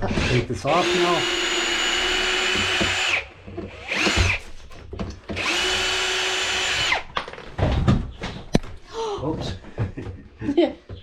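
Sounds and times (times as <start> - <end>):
power drill-driver running: 0.0 - 4.6, 5.3 - 7.1.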